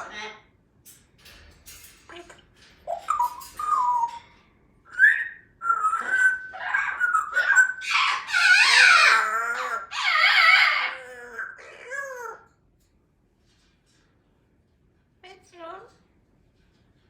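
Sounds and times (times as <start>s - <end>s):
parrot raspy calls: 0.0s - 0.5s, 4.9s - 12.5s
parrot whistling: 2.9s - 4.2s, 4.9s - 11.6s.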